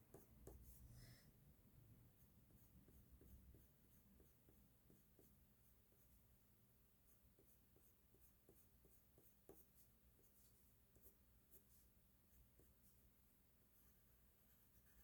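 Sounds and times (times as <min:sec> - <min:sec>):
pencil scratching on paper: 0:00.1 - 0:00.9, 0:02.2 - 0:06.2, 0:07.0 - 0:13.0.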